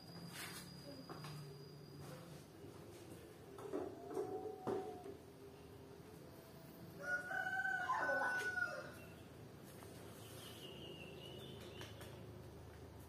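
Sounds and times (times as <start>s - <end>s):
rooster crowing: 7.0s - 9.0s.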